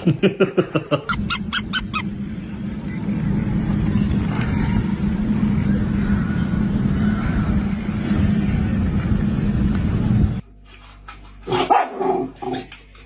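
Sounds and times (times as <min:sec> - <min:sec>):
motor hum: 0:01.1 - 0:10.4
low rumble: 0:01.9 - 0:10.4.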